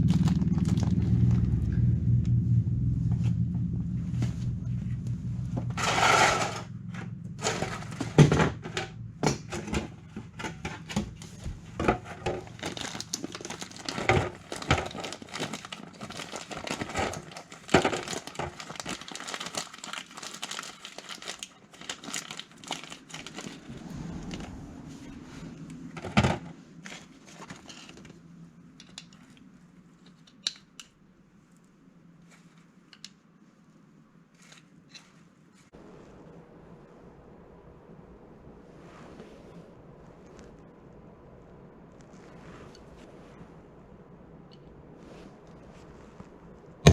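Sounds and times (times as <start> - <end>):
faint low hum: 0.0 - 46.9
rustling: 3.0 - 30.4, 38.6 - 44.0, 44.6 - 46.8.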